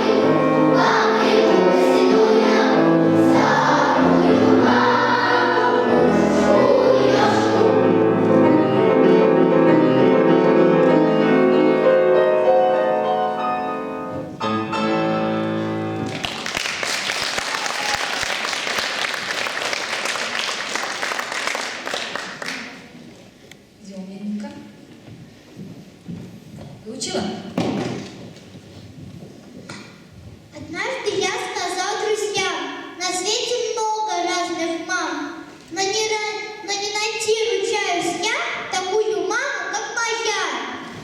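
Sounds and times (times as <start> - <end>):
children's choir singing: 0.0 - 10.8
audience applause: 16.0 - 22.9.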